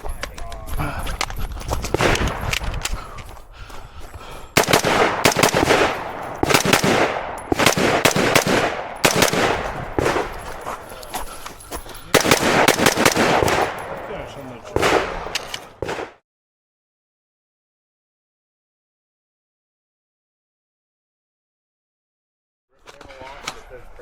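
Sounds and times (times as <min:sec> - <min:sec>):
rifle shots with echo: 0:01.9 - 0:03.0, 0:04.6 - 0:10.9, 0:12.1 - 0:16.2.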